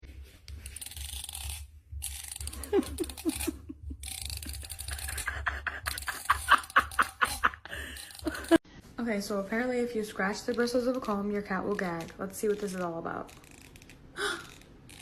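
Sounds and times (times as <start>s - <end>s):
plastic comb teeth scratched: 0.5s - 8.6s, 10.4s - 15.0s.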